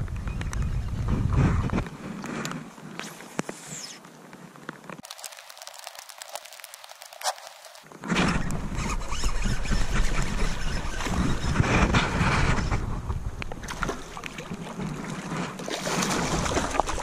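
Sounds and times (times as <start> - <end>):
wind buffeting microphone: 0.0 - 2.2, 8.2 - 17.0
small scattered clicks: 3.4 - 7.9
rushing water: 5.0 - 7.9, 13.6 - 17.0.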